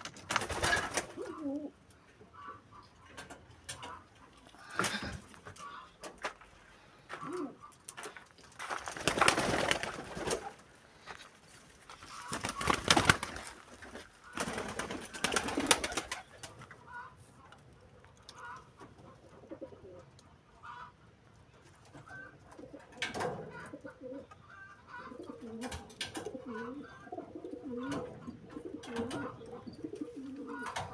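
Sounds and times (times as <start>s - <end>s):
pigeons cooing: 0.4s - 6.0s, 7.1s - 7.8s, 12.1s - 17.2s, 18.3s - 20.9s, 21.9s - 30.9s.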